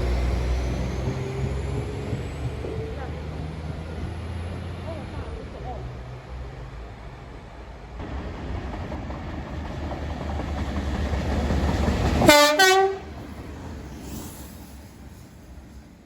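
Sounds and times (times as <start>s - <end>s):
train rumble: 0.0s - 16.0s
two-tone train horn: 12.2s - 13.1s.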